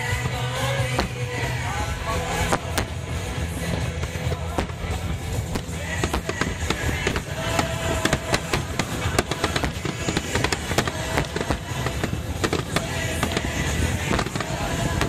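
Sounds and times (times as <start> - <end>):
firework bursts bangs and crackles: 0.0 - 15.0
music playing: 0.0 - 15.0.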